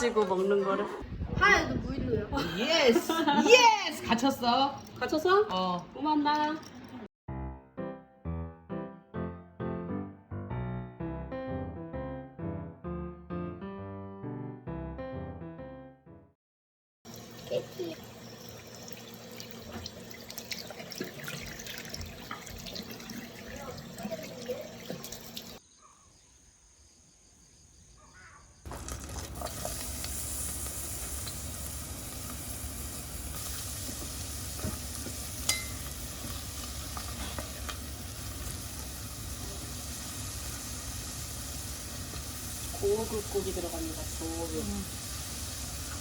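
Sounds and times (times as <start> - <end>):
food sizzling in a pan: 17.1 - 25.6, 28.7 - 46.0.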